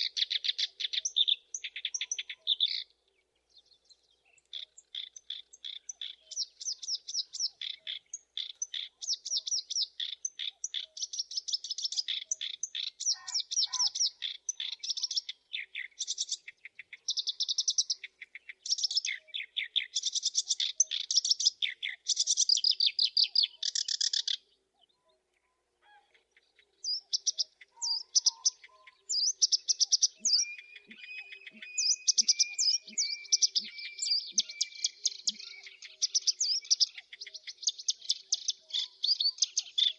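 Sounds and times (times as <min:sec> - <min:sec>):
bird singing scratchy trills: 0:26.4 - 0:39.9.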